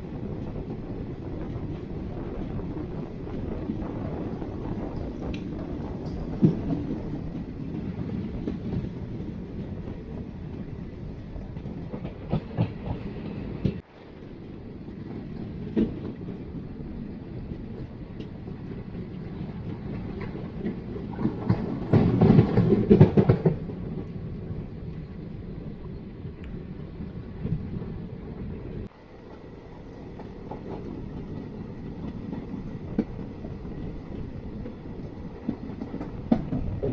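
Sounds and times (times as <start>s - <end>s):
rapid train clattering: 0.0s - 13.9s, 14.7s - 25.4s, 26.8s - 36.9s
train rumbling on track: 0.0s - 36.9s
wheels clicking over rail joints: 0.1s - 36.9s.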